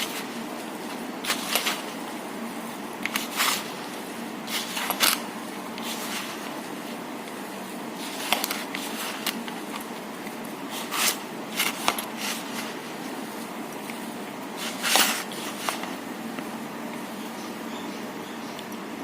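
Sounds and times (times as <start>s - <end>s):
clicks and rustling swishes in bowl: 0.0s - 18.8s
steady background hum: 0.0s - 19.0s.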